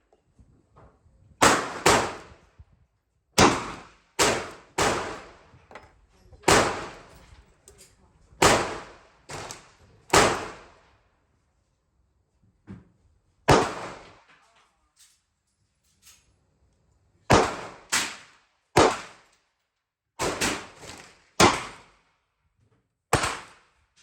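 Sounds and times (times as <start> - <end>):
gunshots with echo: 1.4 - 2.3, 3.4 - 5.5, 6.5 - 7.1, 8.4 - 10.7, 13.5 - 14.2, 17.3 - 18.1.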